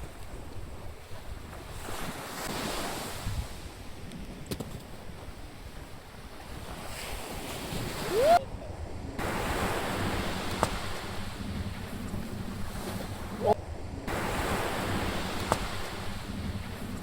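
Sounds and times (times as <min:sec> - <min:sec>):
ocean surf washing in: 0:06.5 - 0:17.0
brief rising tone: 0:08.1 - 0:08.4.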